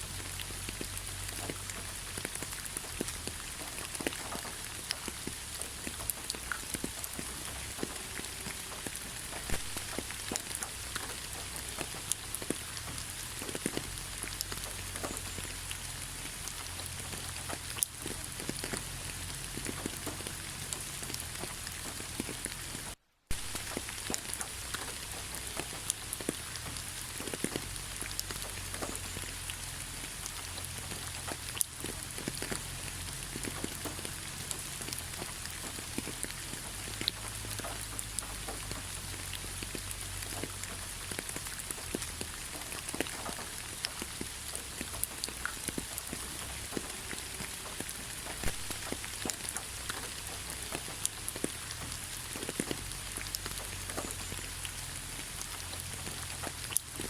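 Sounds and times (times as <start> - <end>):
rain hissing: 0.0 - 57.0
raindrops striking close by: 0.0 - 57.0.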